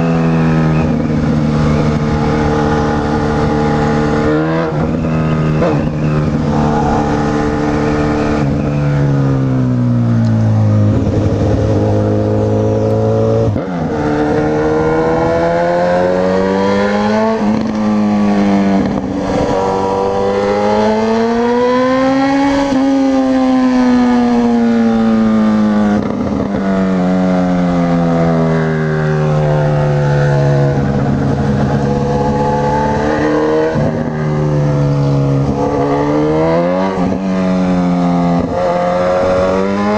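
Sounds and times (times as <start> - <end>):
motorcycle engine revving: 0.0 - 39.9
wind rush on microphone: 10.5 - 16.1, 17.3 - 20.6, 30.6 - 36.2.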